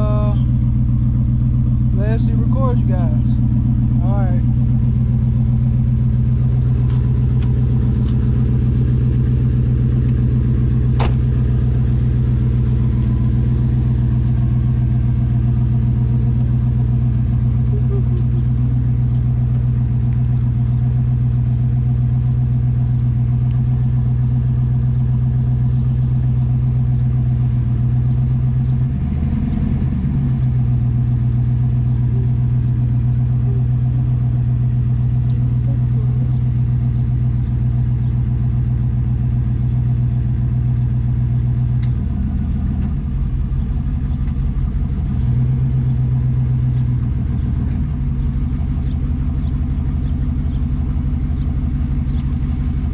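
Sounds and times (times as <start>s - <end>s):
car engine running steadily: 0.0s - 52.9s.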